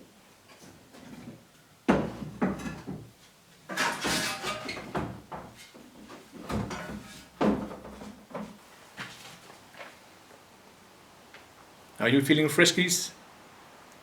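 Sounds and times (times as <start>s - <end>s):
household objects knocking and clattering: 1.9s - 8.6s.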